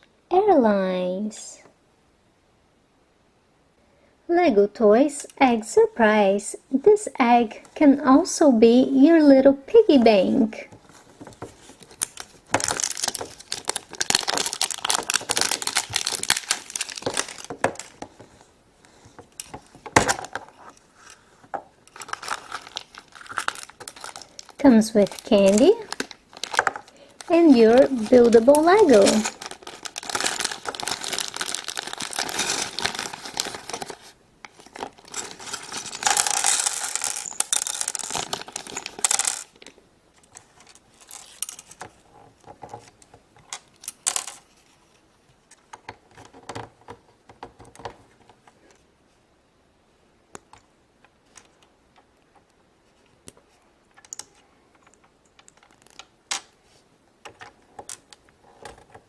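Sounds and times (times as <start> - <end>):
plastic wrapping crinkling and tearing: 10.6 - 39.7, 40.3 - 41.9
plastic pieces clicking and clattering: 11.1 - 21.2, 21.8 - 44.5, 53.9 - 56.6.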